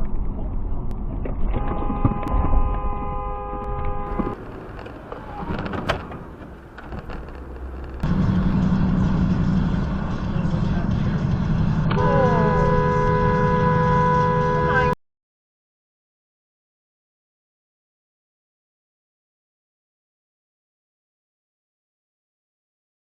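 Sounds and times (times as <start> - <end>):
engine and road rumble: 0.0 - 15.0
car horn: 1.5 - 4.4, 11.9 - 15.0.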